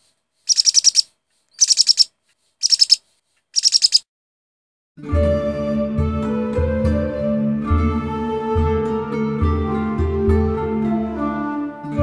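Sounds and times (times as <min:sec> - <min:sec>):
bird chirping: 0:00.5 - 0:03.0, 0:03.6 - 0:04.0
instrumental music: 0:05.0 - 0:12.0.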